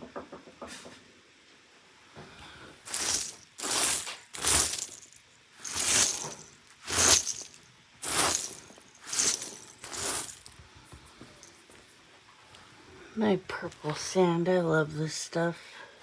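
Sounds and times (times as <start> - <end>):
dry food rattling from container: 2.9 - 10.6.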